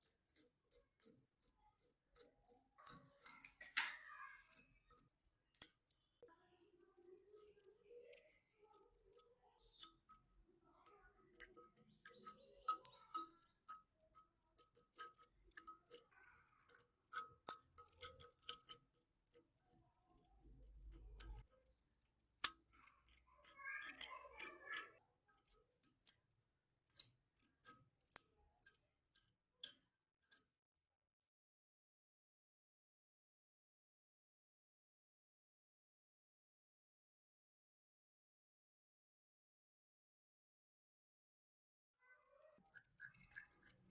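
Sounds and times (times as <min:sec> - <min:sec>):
metallic clicks and scrapes: 0:00.0 - 0:30.6, 0:42.3 - 0:43.9.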